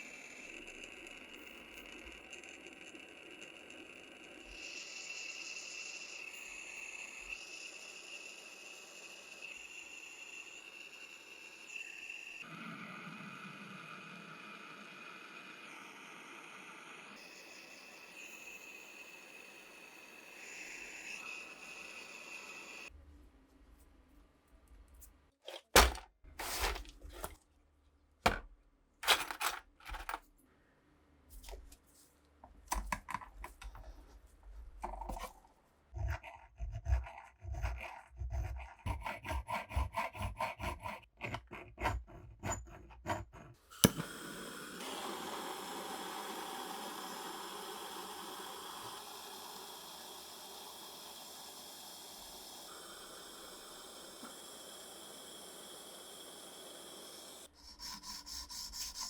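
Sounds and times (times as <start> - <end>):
metal parts clicking and knocking: 29.0 - 30.3
steady hiss: 43.8 - 57.5.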